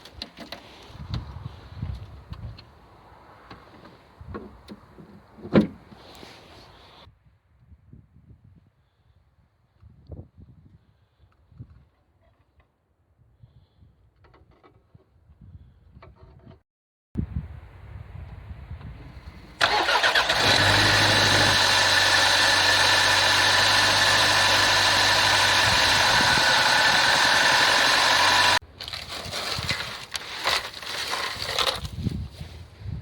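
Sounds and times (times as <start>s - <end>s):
wind noise: 0.8s - 5.0s, 7.2s - 11.9s, 14.9s - 16.6s, 17.2s - 20.8s, 25.4s - 27.2s, 31.2s - 33.0s
petrol engine running: 19.3s - 28.6s.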